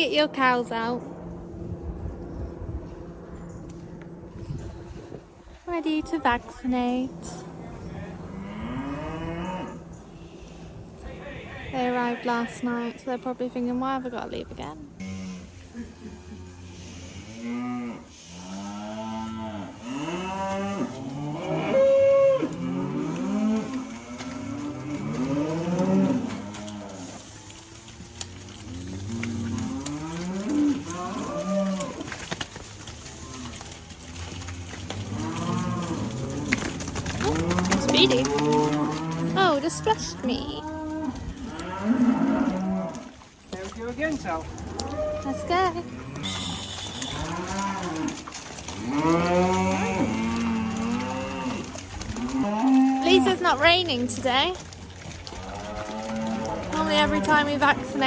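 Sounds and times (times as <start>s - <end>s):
cattle mooing: 6.8s - 10.1s, 15.0s - 58.0s.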